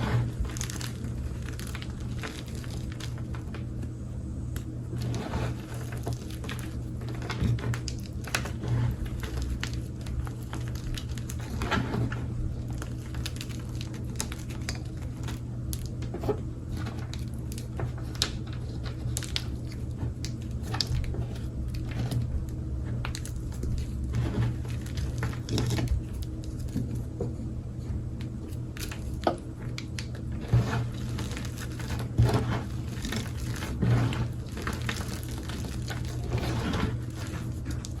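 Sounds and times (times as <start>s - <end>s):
low hum: 0.0s - 38.0s
chalk crunching by hand: 30.4s - 38.0s.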